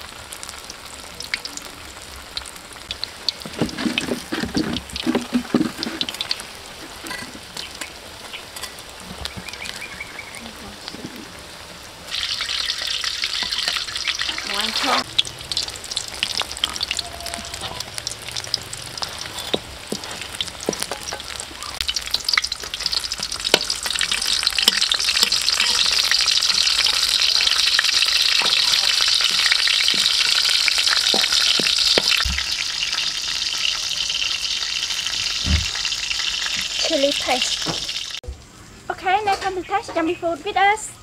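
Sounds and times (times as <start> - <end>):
food sizzling in oil: 0.0 - 38.2
metal spatula scraping pan: 3.4 - 7.4, 13.3 - 15.1, 19.0 - 21.4, 23.5 - 27.0.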